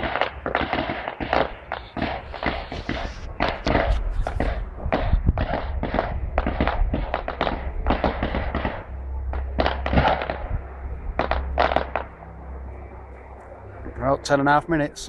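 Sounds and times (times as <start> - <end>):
fireworks banging and crackling: 0.0 - 8.8, 9.4 - 10.5, 11.2 - 12.1.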